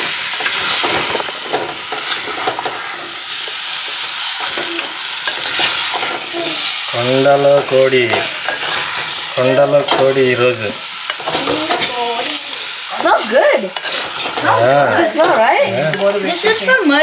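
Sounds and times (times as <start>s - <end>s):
chicken sizzling in a pot: 0.0s - 17.0s
stirring clicks and scrapes: 0.4s - 6.9s, 13.7s - 14.6s.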